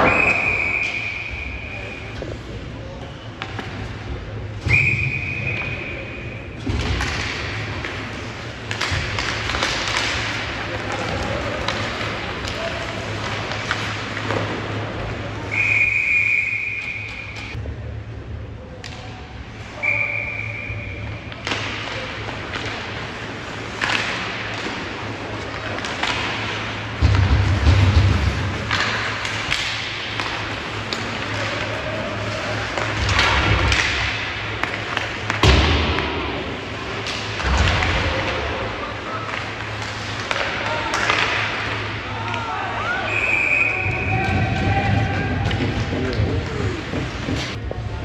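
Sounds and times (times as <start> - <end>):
referee's whistle: 0.0 - 2.1, 4.6 - 5.9, 15.5 - 17.5, 19.8 - 21.0, 43.0 - 44.4
low arena hum: 0.0 - 48.0.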